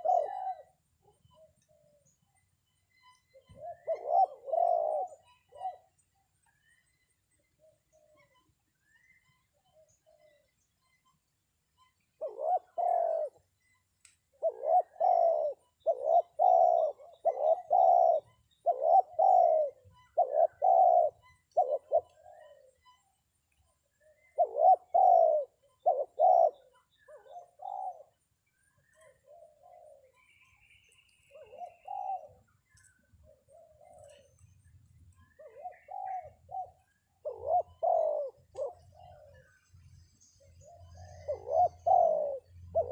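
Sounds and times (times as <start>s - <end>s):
dove cooing: 0.0s - 2.1s, 3.3s - 6.0s, 12.2s - 13.5s, 14.3s - 22.8s, 24.0s - 30.4s, 31.2s - 34.6s, 35.2s - 39.6s, 40.4s - 42.9s.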